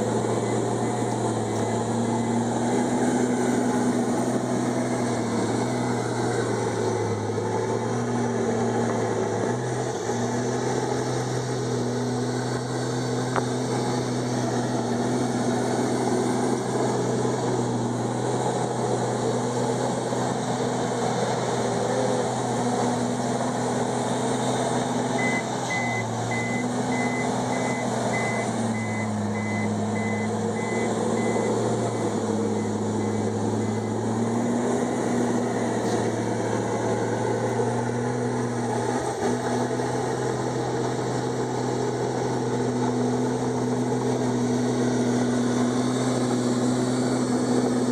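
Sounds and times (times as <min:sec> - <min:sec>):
bulldozer diesel engine running: 0:00.0 - 0:47.9
back-up alarm beeping: 0:25.2 - 0:34.3.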